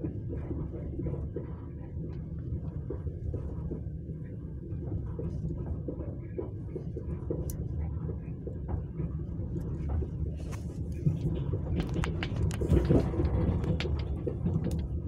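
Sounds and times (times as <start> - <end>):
train rumbling: 9.2 - 15.0.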